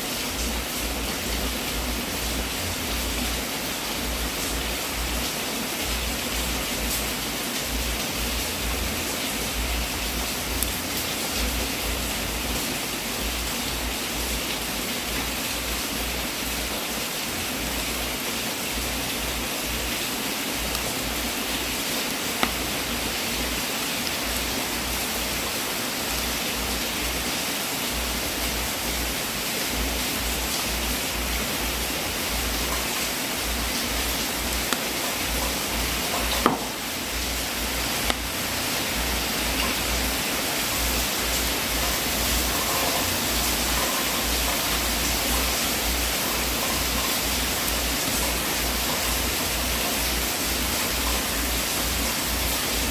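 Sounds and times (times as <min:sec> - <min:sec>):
wood fire hissing: 0:00.0 - 0:52.9
fire popping: 0:22.3 - 0:23.1.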